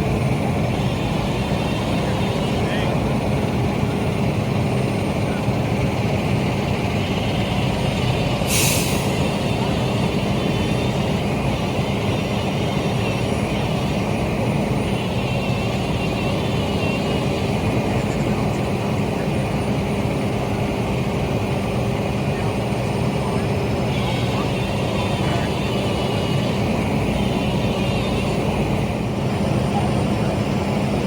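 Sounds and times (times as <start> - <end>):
large vehicle engine running: 0.0 - 31.0
air hiss: 8.4 - 9.3.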